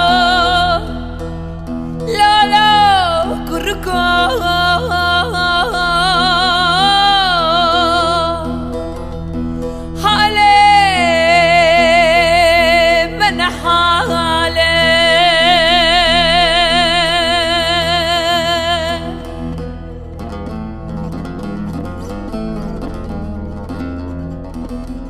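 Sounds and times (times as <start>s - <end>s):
woman singing a long note: 0.0s - 1.0s, 2.1s - 8.5s, 10.0s - 19.1s.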